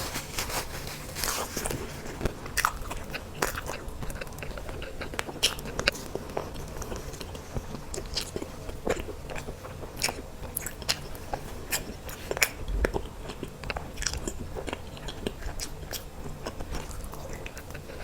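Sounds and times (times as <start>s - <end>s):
person chewing cake: 0.0s - 18.0s.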